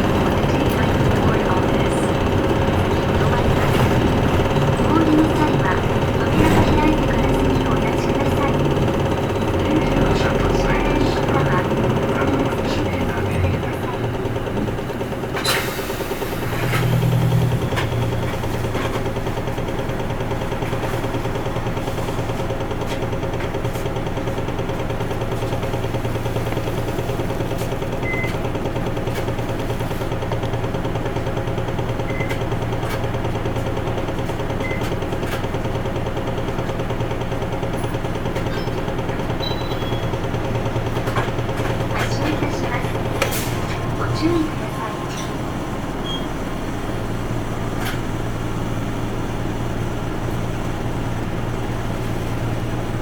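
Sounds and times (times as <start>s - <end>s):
bus diesel engine drone: 0.0s - 53.0s.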